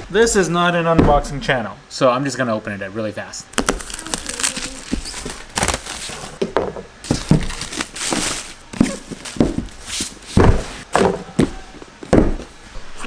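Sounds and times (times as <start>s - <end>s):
knocks and thumps: 1.0s - 1.4s, 6.3s - 12.6s
packaging rustling and tearing: 3.6s - 6.4s, 7.0s - 11.5s.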